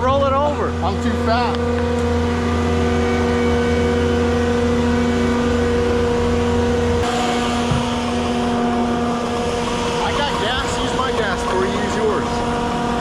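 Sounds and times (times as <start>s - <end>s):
heavy equipment engine running: 0.0s - 13.0s.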